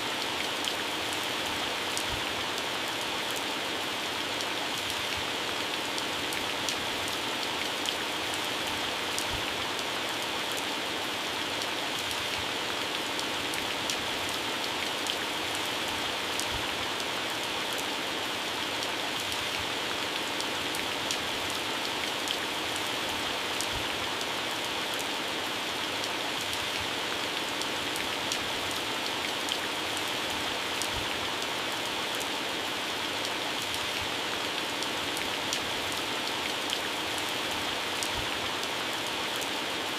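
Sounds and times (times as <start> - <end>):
heavy rain on plants: 0.0 - 39.9.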